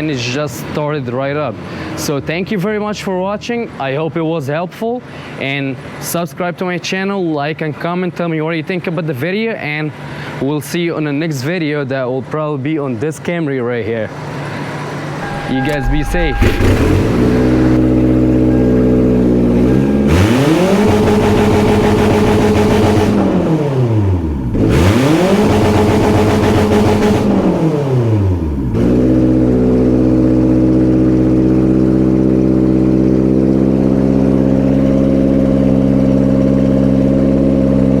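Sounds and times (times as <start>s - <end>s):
car engine revving and idling: 15.2s - 38.0s.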